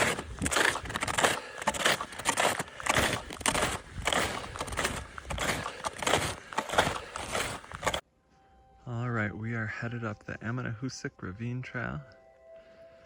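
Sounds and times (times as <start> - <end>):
footsteps crunching in snow: 0.0 - 8.0.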